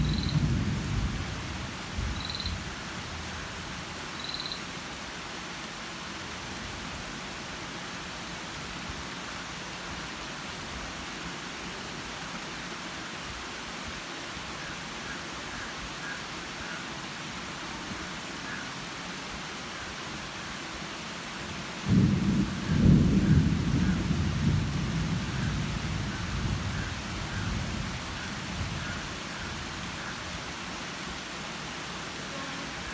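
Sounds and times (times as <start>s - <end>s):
steady outdoor hiss: 0.0s - 32.9s.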